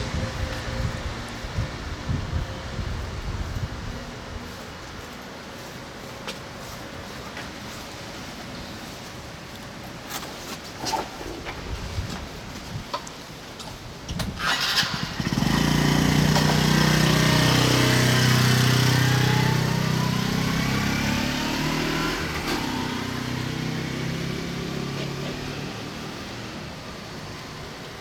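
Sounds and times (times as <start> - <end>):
small engine droning: 0.0 - 6.8, 14.4 - 28.0.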